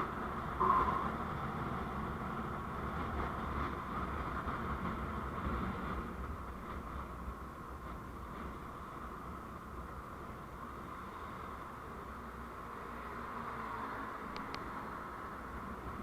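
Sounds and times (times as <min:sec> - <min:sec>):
engine and road rumble: 0:00.0 - 0:16.0
mid-pitched hum: 0:00.6 - 0:01.4.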